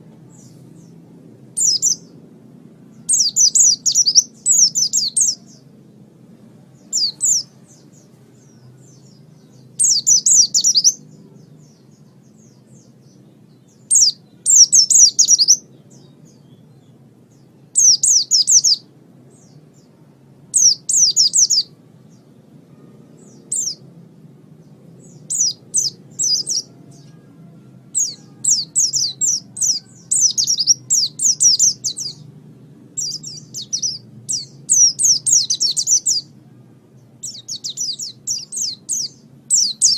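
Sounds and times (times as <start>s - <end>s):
steady low hum: 0.0s - 39.9s
bird singing high chirps: 1.6s - 2.2s, 2.9s - 5.7s, 6.7s - 23.9s, 24.6s - 32.3s, 32.9s - 39.9s.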